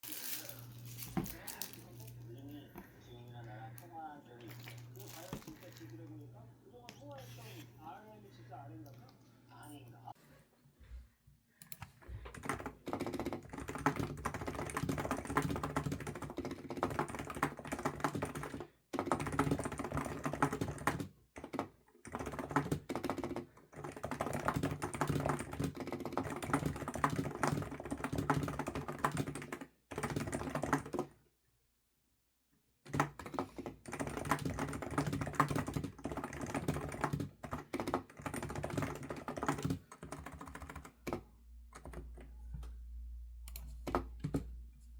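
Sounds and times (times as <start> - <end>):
typing on computer keyboard: 11.6 - 31.2, 32.9 - 41.2, 41.8 - 42.3.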